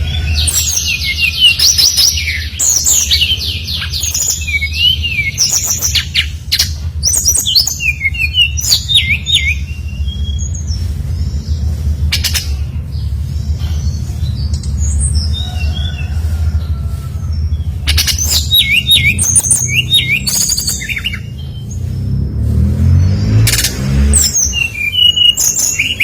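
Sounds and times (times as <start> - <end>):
bird singing whistled notes: 0.0 - 11.5, 17.8 - 21.9, 23.0 - 26.0
steady low hum: 0.0 - 26.0.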